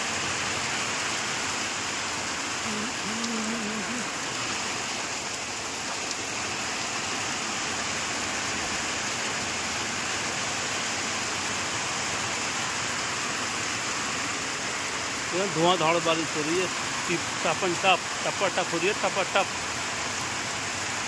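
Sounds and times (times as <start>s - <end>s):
torrential rain on wet ground: 0.0s - 21.0s.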